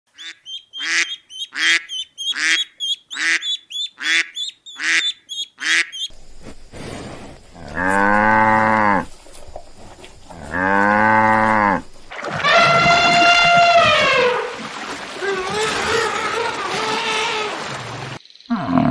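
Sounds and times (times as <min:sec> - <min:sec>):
short repeated animal calls: 0:00.2 - 0:06.5
cow mooing: 0:07.5 - 0:14.4
long high-pitched animal call: 0:10.5 - 0:14.6.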